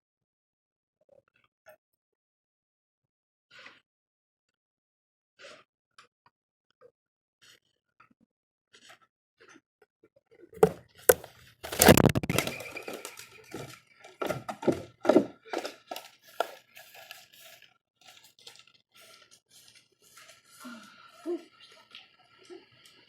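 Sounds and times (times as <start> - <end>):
birds knocking against feeder: 10.6 - 13.0.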